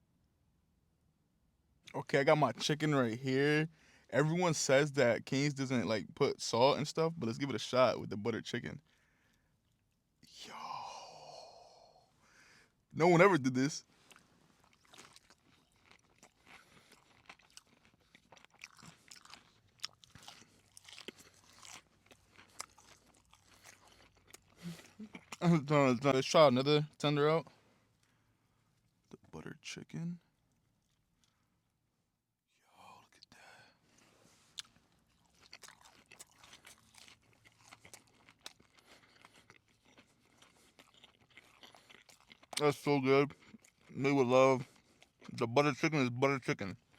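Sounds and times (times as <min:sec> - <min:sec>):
person chewing crunchy food: 0:14.0 - 0:25.5, 0:34.0 - 0:45.4.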